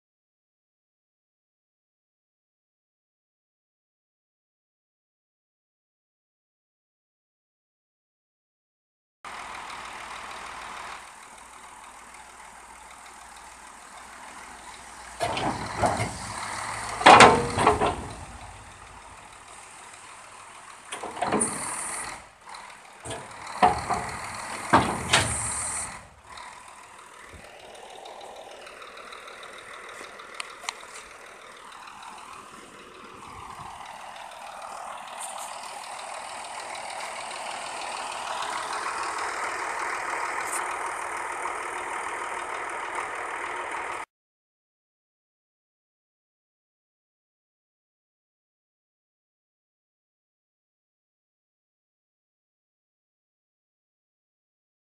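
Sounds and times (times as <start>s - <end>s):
diesel truck engine running: 9.3s - 44.1s.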